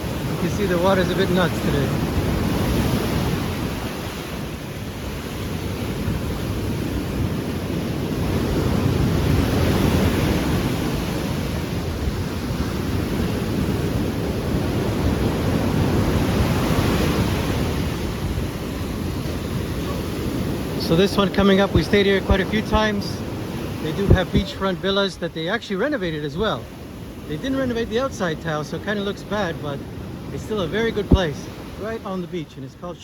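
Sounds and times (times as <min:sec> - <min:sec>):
sea surf breaking on beach: 0:00.0 - 0:33.0
wind on microphone: 0:01.7 - 0:20.9, 0:21.6 - 0:24.7.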